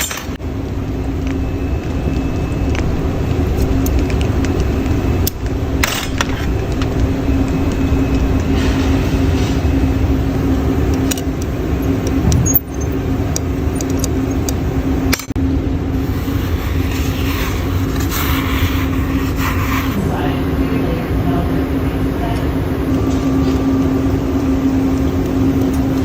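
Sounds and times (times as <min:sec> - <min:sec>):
machine hum and rumble: 0:00.0 - 0:26.0
metallic or glass clinks: 0:12.3 - 0:13.0.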